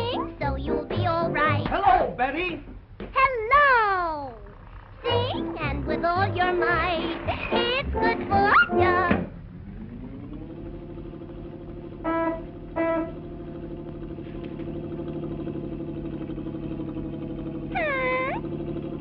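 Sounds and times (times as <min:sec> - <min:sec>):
cartoon engine drone: 0:00.0 - 0:01.6, 0:04.3 - 0:19.0
swooping whine: 0:04.4 - 0:19.0
horn toots: 0:11.9 - 0:13.6.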